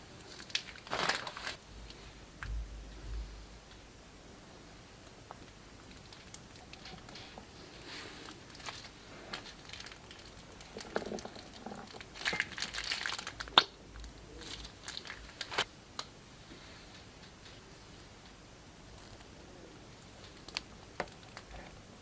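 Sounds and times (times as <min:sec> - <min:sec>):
plastic bag crinkling: 0:00.2 - 0:01.6, 0:05.8 - 0:13.7, 0:14.3 - 0:15.7
slime crackling and popping: 0:08.2 - 0:16.1.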